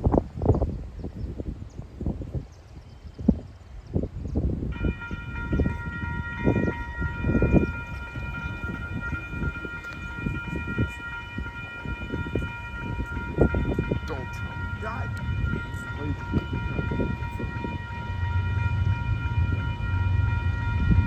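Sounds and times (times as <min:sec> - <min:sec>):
train rumble and clatter: 0:00.0 - 0:21.0
locomotive air horn chord: 0:04.8 - 0:21.0.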